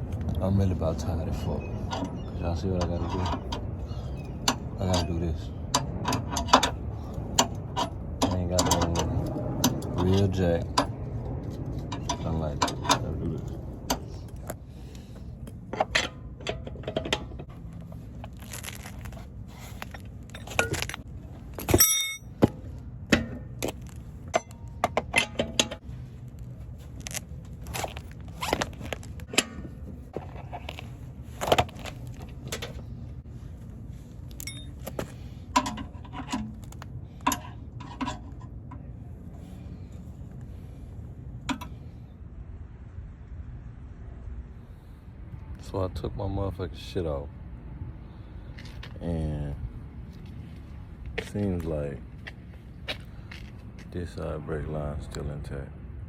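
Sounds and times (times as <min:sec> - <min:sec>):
metal tools clinking and scraping: 0:01.3 - 0:10.9, 0:15.5 - 0:22.5, 0:23.1 - 0:25.8, 0:34.3 - 0:38.6.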